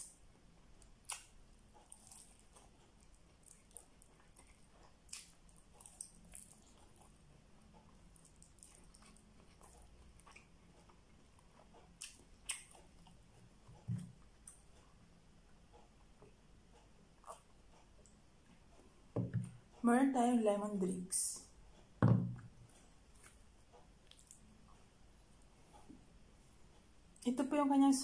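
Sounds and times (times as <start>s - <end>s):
person chewing: 0.8s - 15.0s, 17.1s - 18.2s, 23.0s - 24.5s.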